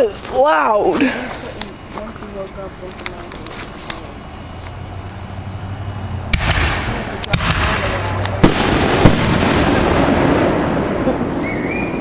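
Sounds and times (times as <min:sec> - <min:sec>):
fireworks hissing crackle: 0:00.0 - 0:12.0
firework blast: 0:05.9 - 0:12.0
firework sharp bangs: 0:06.3 - 0:12.0.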